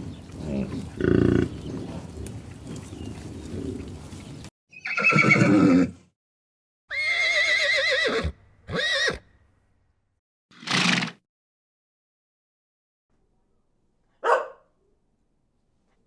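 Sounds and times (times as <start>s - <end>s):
horse whinnying: 4.7s - 6.0s, 6.9s - 9.2s, 10.6s - 11.2s.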